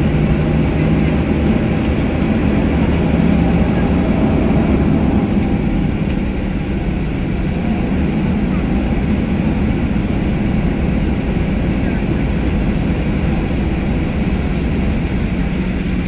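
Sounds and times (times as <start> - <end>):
jet engines low rumble: 0.0 - 16.0.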